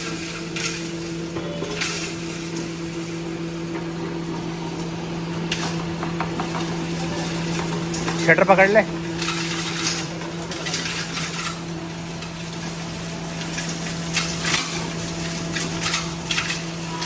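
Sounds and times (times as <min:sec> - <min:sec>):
grinding machine humming: 0:00.0 - 0:17.0.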